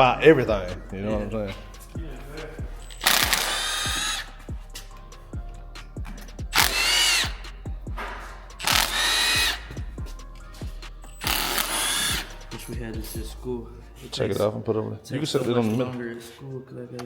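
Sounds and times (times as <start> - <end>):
cordless power tool whirring: 2.9 - 4.5, 6.5 - 7.5, 8.6 - 9.9, 11.2 - 12.4.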